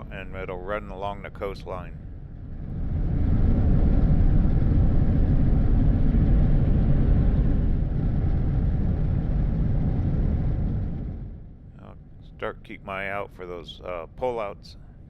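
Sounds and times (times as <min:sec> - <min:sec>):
vehicle driving at highway speed: 0:02.4 - 0:11.4.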